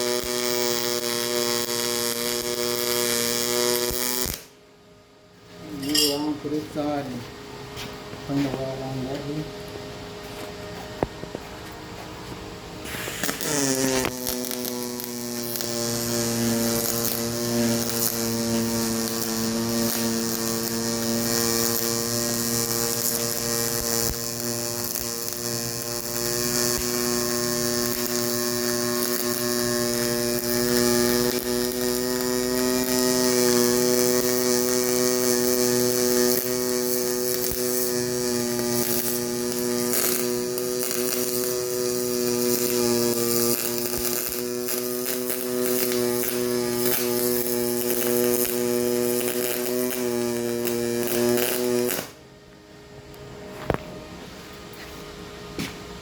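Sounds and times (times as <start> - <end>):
welder arc buzzing: 0.0 - 4.6, 5.6 - 52.3
welding arc crackle: 0.0 - 4.6, 12.2 - 52.2.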